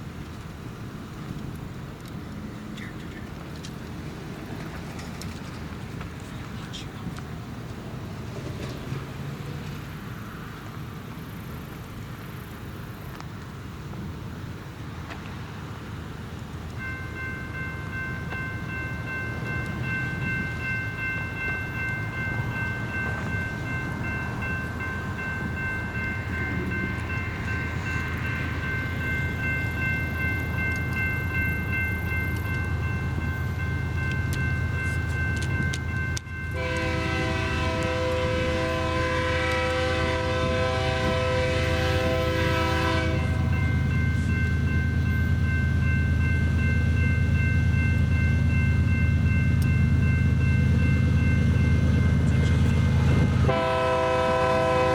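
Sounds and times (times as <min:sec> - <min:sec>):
diesel locomotive rumble: 0:00.0 - 0:54.9
train air horn blast: 0:36.6 - 0:43.5, 0:53.5 - 0:54.9.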